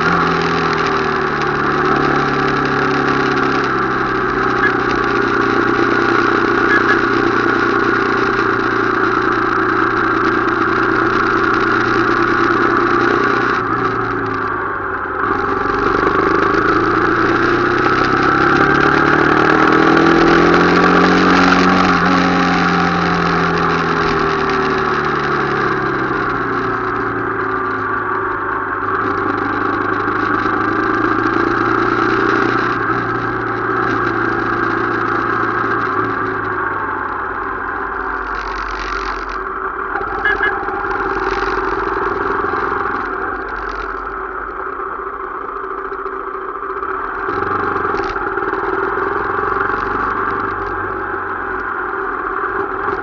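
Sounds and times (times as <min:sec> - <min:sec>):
motorcycle engine: 0:00.0 - 0:53.0.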